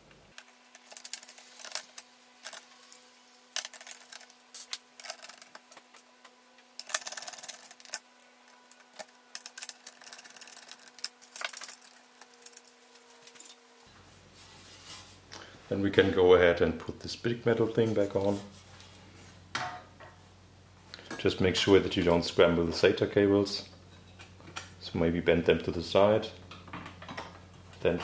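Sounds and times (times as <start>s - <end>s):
computer parts rattling: 0.5s - 2.7s, 3.4s - 5.8s, 6.8s - 13.6s
computer parts clicking and knocking: 6.8s - 8.0s.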